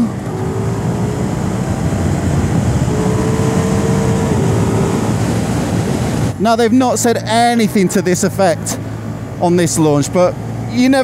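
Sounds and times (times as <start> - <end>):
motorcycle engine pulling at speed: 0.0 - 6.4
heavy wind rush: 0.0 - 7.5.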